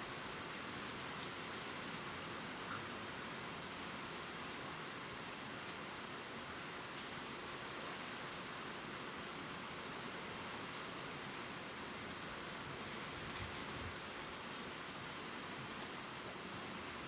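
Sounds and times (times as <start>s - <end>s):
gentle rain on leaves: 0.0s - 17.0s.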